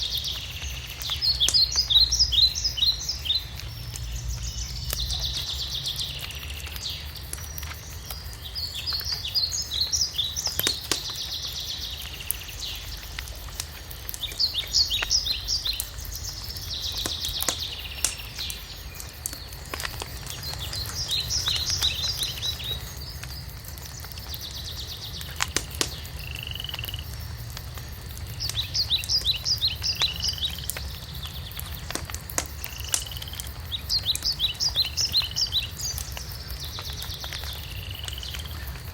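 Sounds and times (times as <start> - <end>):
wood fire crackling and popping: 0.0 - 38.9
songbirds singing trilled phrases: 14.2 - 27.0.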